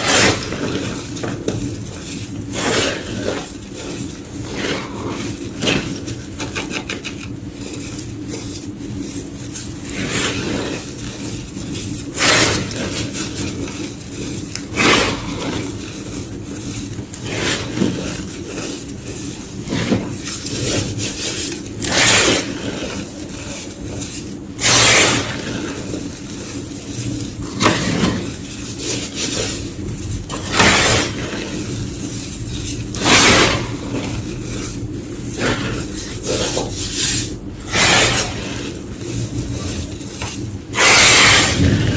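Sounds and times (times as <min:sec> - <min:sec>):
chalk crunching: 0:00.0 - 0:41.9.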